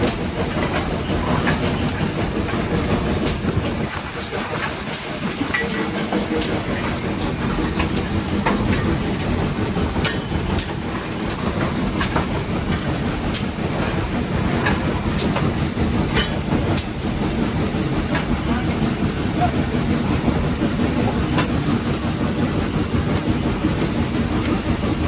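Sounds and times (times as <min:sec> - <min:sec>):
steam locomotive rumbling: 0:00.0 - 0:25.0
wheels clicking on track: 0:00.0 - 0:25.0.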